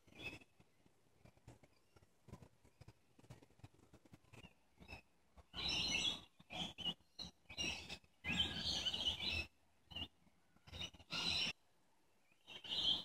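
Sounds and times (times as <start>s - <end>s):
birds chirping: 4.3s - 11.6s.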